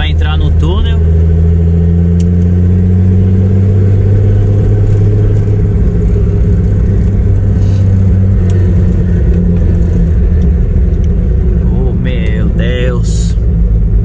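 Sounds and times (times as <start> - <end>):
car engine droning at cruise: 0.0 - 14.0.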